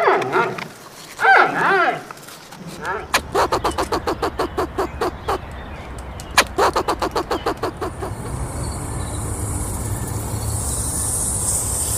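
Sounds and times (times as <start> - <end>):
duck quacking: 3.1 - 5.5, 6.4 - 8.1
steady hiss: 6.4 - 11.9.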